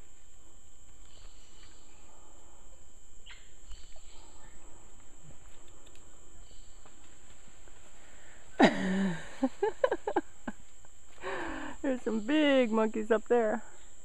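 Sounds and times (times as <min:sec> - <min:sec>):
insect chorus drone: 0:00.0 - 0:14.0
faint clicks and rustles: 0:03.7 - 0:08.5.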